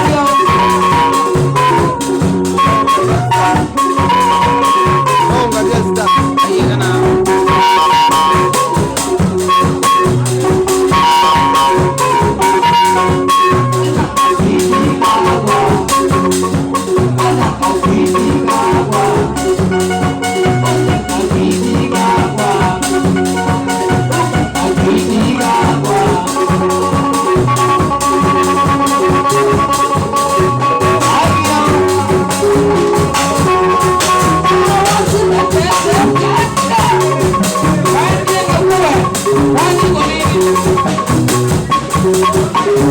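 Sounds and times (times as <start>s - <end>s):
bass notes: 0.0s - 42.9s
drum kit fast beat: 0.0s - 42.9s
high melodic line: 0.0s - 42.9s.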